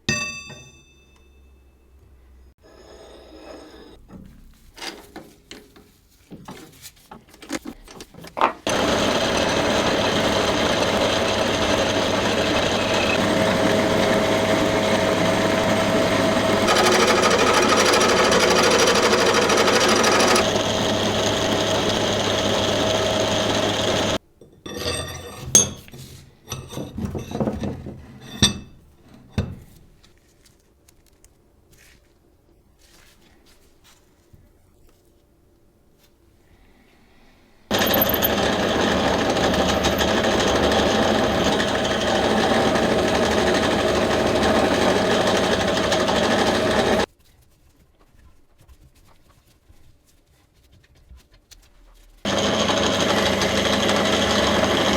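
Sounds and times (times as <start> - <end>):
power tool running: 8.7 - 24.2, 37.7 - 47.1, 52.3 - 54.9.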